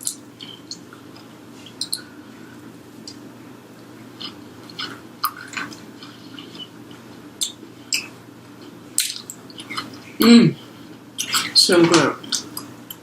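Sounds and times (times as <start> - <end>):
wet mouth clicks: 0.0 - 2.1, 3.0 - 3.2, 4.2 - 6.7, 7.4 - 8.2, 9.0 - 10.0, 11.2 - 11.6
chewing crispy chicken: 4.1 - 10.0.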